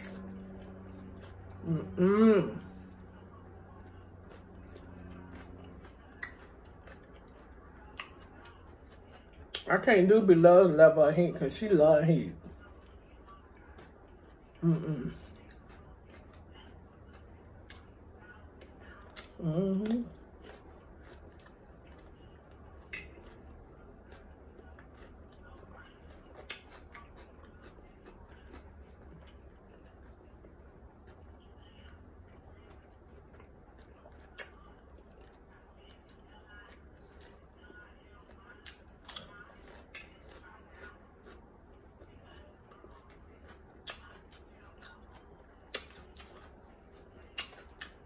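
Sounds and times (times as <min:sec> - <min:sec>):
person humming: 0:01.6 - 0:02.7, 0:14.6 - 0:15.2
mouth clicks and chewing: 0:03.4 - 0:09.8, 0:12.6 - 0:48.0.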